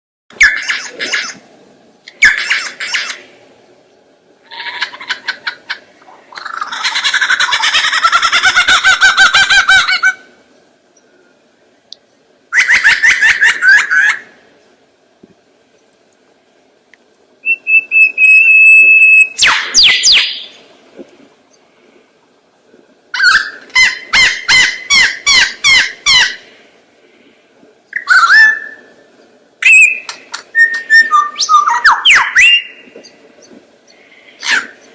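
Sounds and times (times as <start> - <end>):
bird calling and whistling: 0.3 - 1.4, 17.4 - 20.7, 23.2 - 26.4, 27.9 - 29.0, 29.6 - 34.9.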